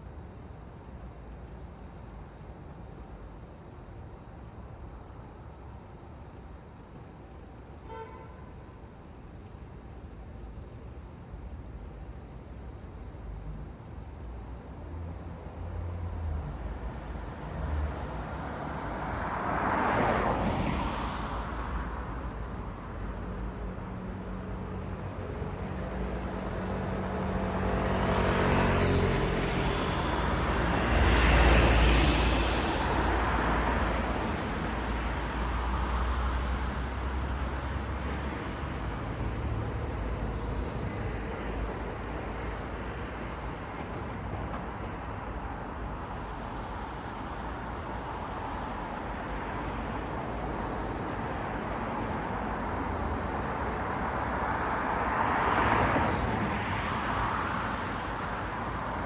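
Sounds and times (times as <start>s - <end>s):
street hum: 0.0s - 59.0s
cars passing: 17.4s - 22.1s, 26.5s - 59.0s.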